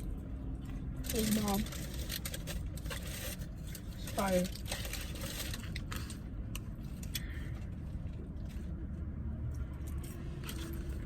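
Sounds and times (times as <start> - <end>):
car engine rumble: 0.0 - 11.0
food packaging rustling: 1.1 - 6.3.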